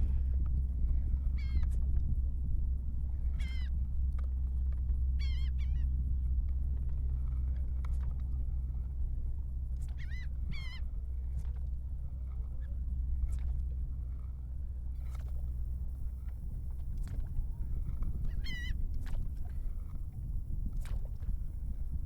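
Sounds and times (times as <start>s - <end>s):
low rumble: 14.9s - 22.0s.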